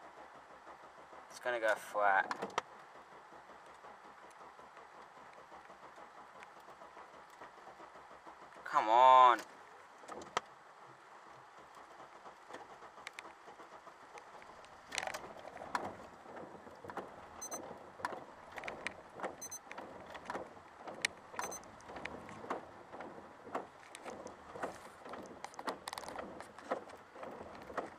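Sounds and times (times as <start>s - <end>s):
car engine idling: 0.0s - 27.9s
irregular clicks and taps: 1.7s - 8.0s, 12.5s - 13.4s, 14.2s - 27.9s
faint short high beeps: 17.4s - 17.6s, 19.4s - 19.6s, 21.4s - 21.6s.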